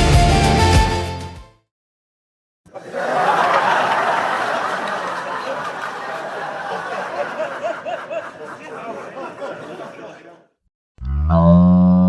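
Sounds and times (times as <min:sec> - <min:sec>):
group of people laughing: 0:02.7 - 0:10.6.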